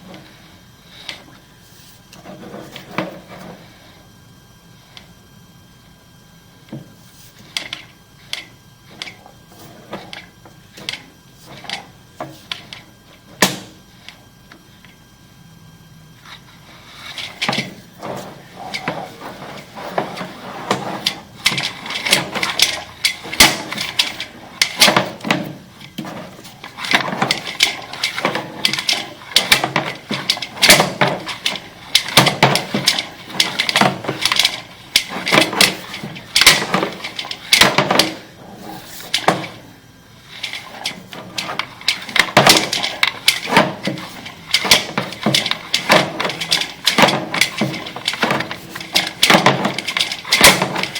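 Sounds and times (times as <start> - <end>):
cable rattling and knocking in pipe: 17.0 - 50.9.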